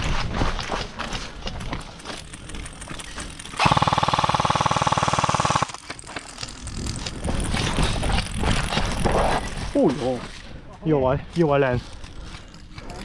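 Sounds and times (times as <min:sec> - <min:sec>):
airsoft gun full-auto burst: 0:03.4 - 0:05.9
faint clicks and rustle: 0:05.7 - 0:13.0.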